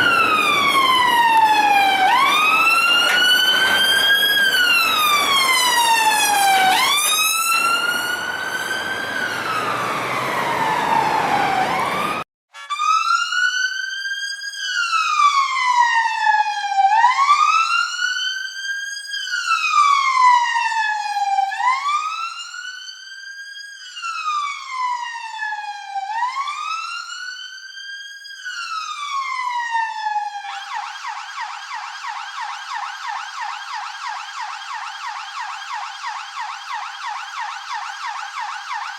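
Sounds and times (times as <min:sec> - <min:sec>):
road noise: 0:00.0 - 0:12.2
siren yelping warble: 0:00.0 - 0:13.2
police siren wailing: 0:00.0 - 0:13.7, 0:14.8 - 0:18.3, 0:19.3 - 0:22.7, 0:24.0 - 0:27.4, 0:28.4 - 0:38.9.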